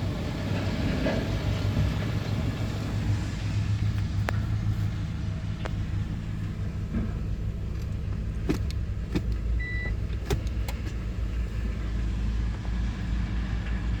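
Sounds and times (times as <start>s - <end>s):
car engine running: 0.0s - 14.0s
sharp clicks: 7.8s - 11.0s
short beep: 9.6s - 10.0s.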